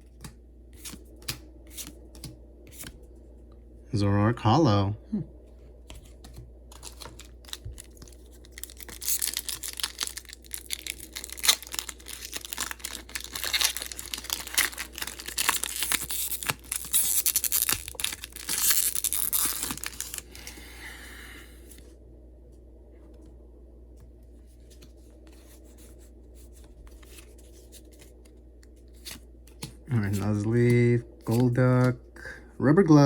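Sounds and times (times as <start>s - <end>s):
foil wrapper crinkling and tearing: 6.7s - 20.5s.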